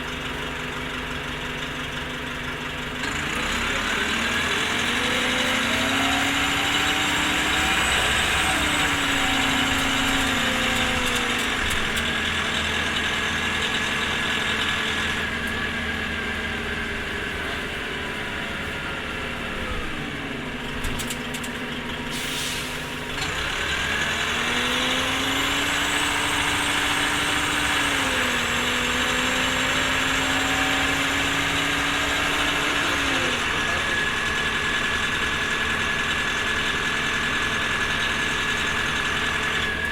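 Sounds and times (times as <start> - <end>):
bus diesel engine: 0.0 - 39.9
air brake hiss: 22.1 - 23.1.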